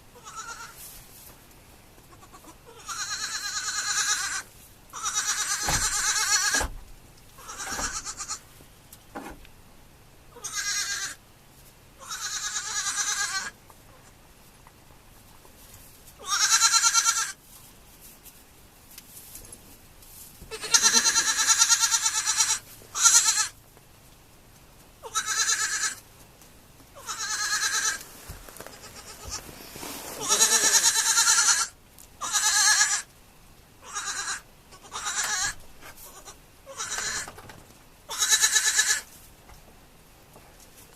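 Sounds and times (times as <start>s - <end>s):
baby goats bleating: 0.2s - 0.8s, 2.0s - 6.7s, 7.4s - 8.5s, 10.3s - 11.2s, 12.0s - 13.6s, 16.2s - 17.4s, 20.5s - 23.6s, 25.0s - 26.0s, 27.0s - 28.0s, 28.6s - 29.6s, 30.2s - 33.1s, 33.8s - 37.3s, 38.1s - 39.1s.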